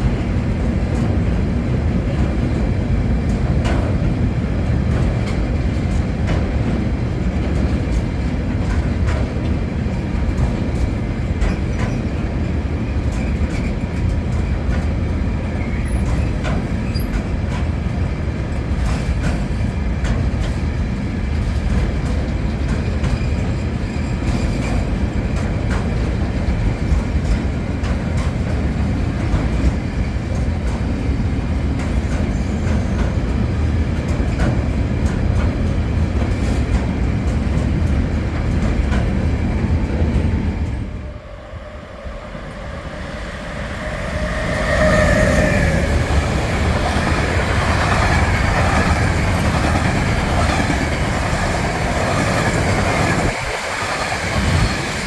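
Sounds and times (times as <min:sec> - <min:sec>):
freight train wagons rumbling: 0:00.0 - 0:55.0
high wavering squeal: 0:40.9 - 0:47.9
wheels clicking over rail joints: 0:43.7 - 0:55.0.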